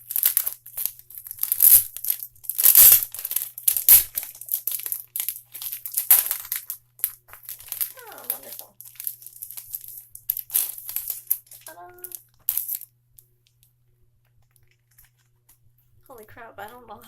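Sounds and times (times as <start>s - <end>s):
packaging crinkling and tearing: 0.0s - 12.8s.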